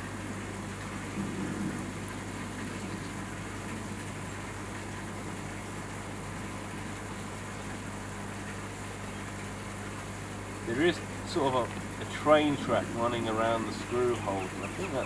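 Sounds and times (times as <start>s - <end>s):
low motor hum: 10.4s - 15.0s.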